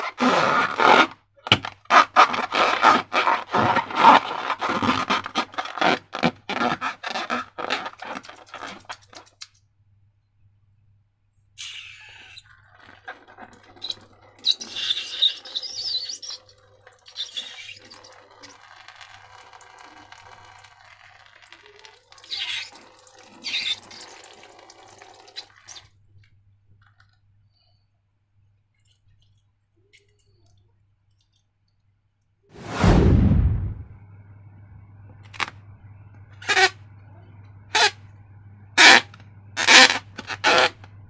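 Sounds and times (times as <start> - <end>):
loud sudden sound: 32.6 - 34.0.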